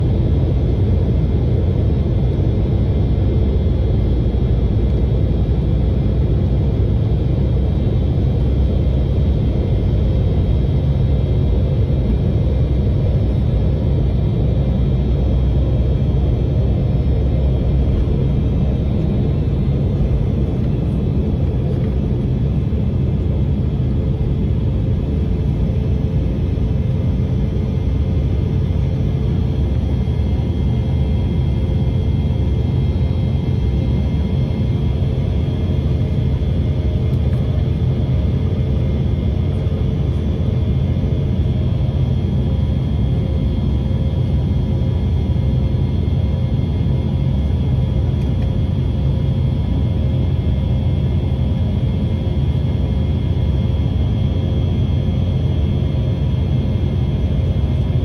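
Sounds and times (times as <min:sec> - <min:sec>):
faint turbine whine: 0:00.0 - 0:58.0
jet engines rumbling: 0:00.0 - 0:58.0.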